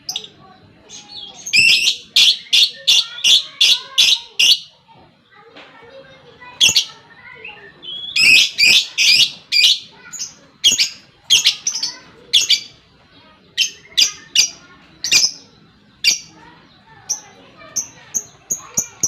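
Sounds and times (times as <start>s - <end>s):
bird chirping shrilly: 1.1s - 4.7s, 6.6s - 12.8s.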